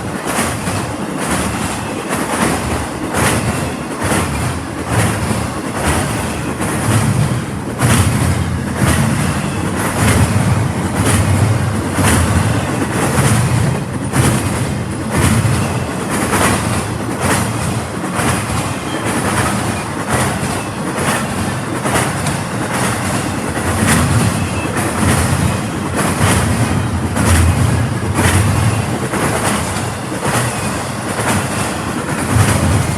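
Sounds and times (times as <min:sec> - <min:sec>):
train rumble: 0:00.0 - 0:32.9
train wheels clicking over rail joints: 0:00.0 - 0:32.9.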